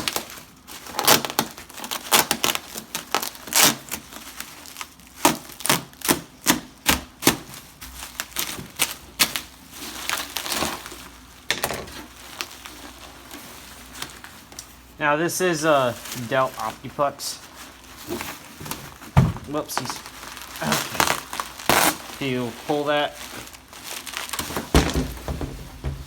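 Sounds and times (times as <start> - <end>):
rustling: 7.5 - 15.0, 15.6 - 26.0
computer case clicks and knocks: 24.7 - 26.0.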